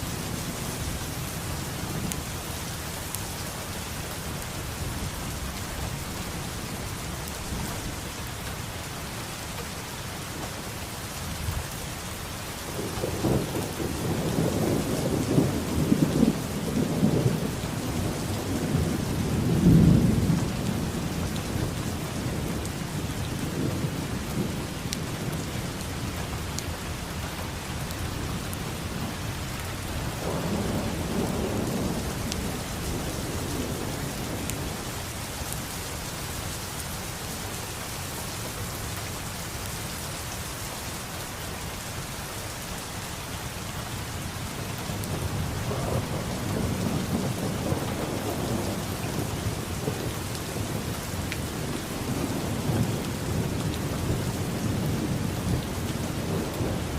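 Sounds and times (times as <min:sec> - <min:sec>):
heavy rain falling: 0:00.0 - 0:56.9
rolling thunder: 0:30.1 - 0:34.8, 0:45.0 - 0:56.9.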